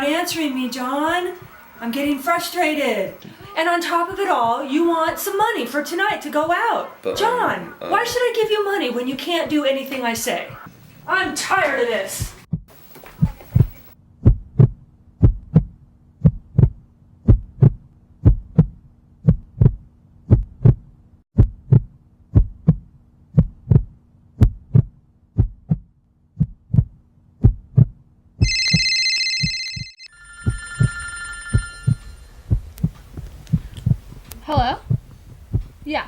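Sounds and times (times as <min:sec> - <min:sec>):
heartbeat thumps: 0:12.2 - 0:28.8, 0:30.4 - 0:36.0
telephone ringing: 0:28.4 - 0:32.4
low hum: 0:30.1 - 0:35.6.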